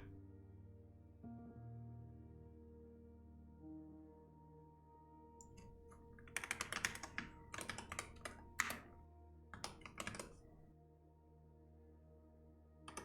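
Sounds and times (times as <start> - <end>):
soft background music: 0.0 - 13.0
computer keyboard typing: 5.4 - 9.0, 9.6 - 10.6.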